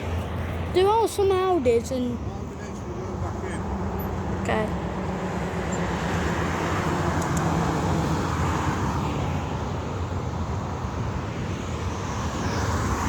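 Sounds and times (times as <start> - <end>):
tyre and road noise: 0.0 - 13.0
vehicle engine hum: 0.0 - 13.0.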